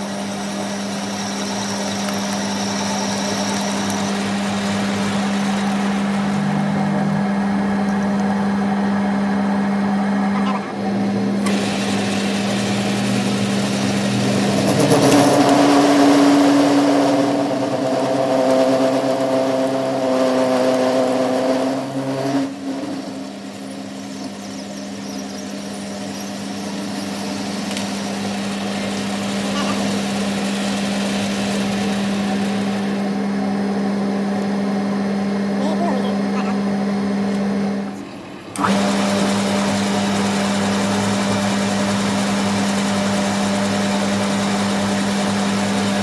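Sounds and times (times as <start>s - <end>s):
higher machine tones: 0.0s - 33.5s
workshop machine humming: 0.0s - 46.0s.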